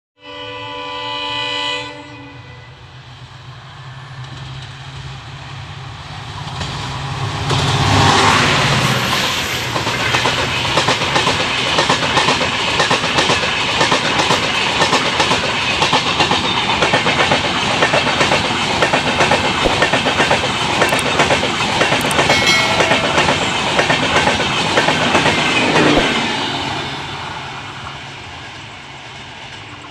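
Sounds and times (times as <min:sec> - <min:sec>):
train wheels clattering over rail joints: 0:09.6 - 0:26.2.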